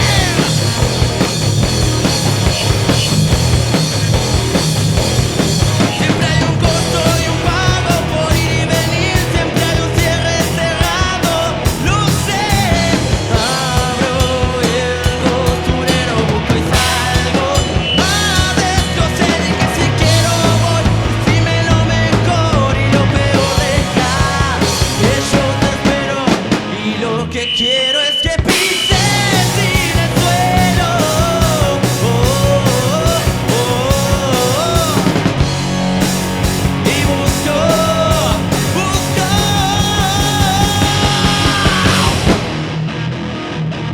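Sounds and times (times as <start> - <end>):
bass guitar: 0.0 - 27.5, 28.4 - 43.9
drums: 0.0 - 43.9
melodic lead lines: 28.9 - 43.2.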